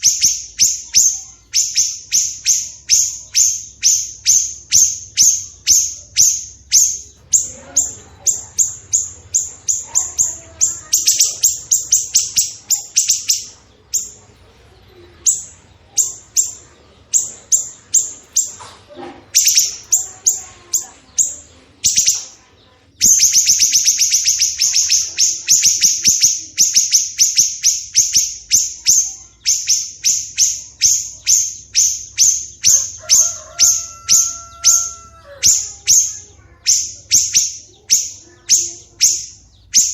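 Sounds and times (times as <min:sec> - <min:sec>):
lower bird warbling: 0:00.0 - 0:39.9
songbird song: 0:00.0 - 0:39.9.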